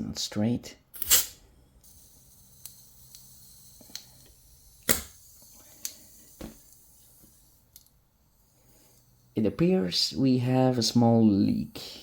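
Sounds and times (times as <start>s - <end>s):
faint gas hiss: 0.9s - 12.0s
loud gas spray: 1.0s - 7.7s.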